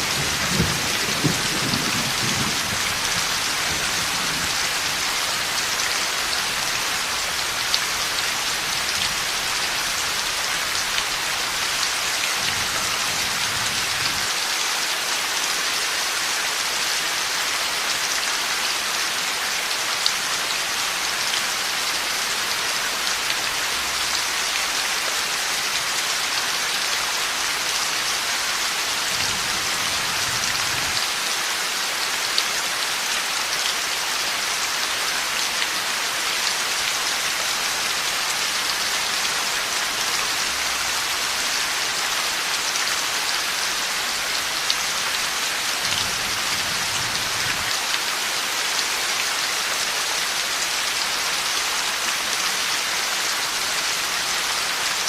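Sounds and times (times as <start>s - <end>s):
thunder rumbling: 0.0s - 4.6s
heavy rain hiss: 0.0s - 55.0s.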